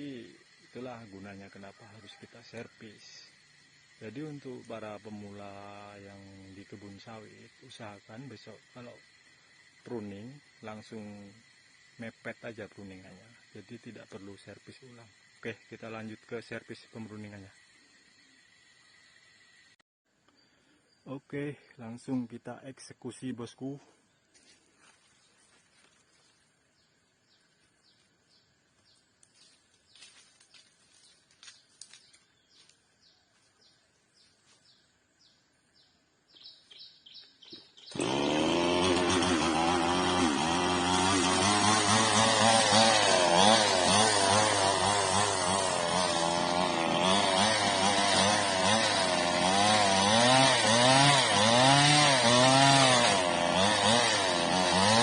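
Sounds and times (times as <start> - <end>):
chainsaw engine revving: 0.0 - 19.8, 37.8 - 55.0.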